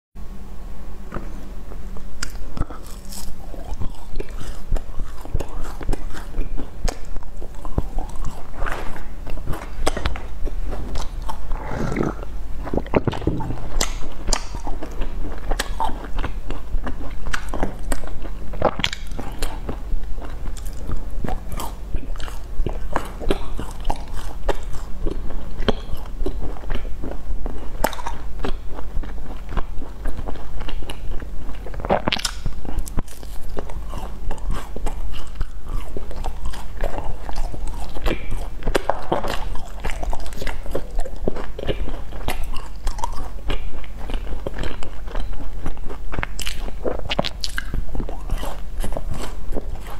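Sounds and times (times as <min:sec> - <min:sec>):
steady low hum: 0:00.2 - 0:49.9
chewing pastry: 0:01.0 - 0:49.9
clicky mouth sounds: 0:09.5 - 0:26.9, 0:27.6 - 0:49.9.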